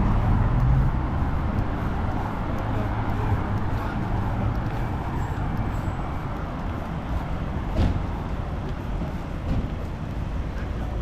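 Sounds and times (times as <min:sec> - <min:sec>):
passing vehicles rumbling: 0:00.0 - 0:11.0.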